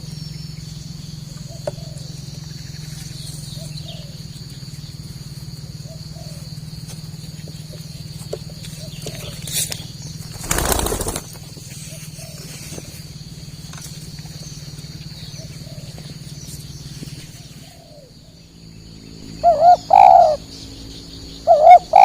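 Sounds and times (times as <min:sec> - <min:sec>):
high insect-like buzz: 0:09.2 - 0:15.2
loud rustling: 0:10.3 - 0:11.4
doves cooing: 0:10.3 - 0:12.9, 0:19.2 - 0:20.5, 0:21.4 - 0:22.0.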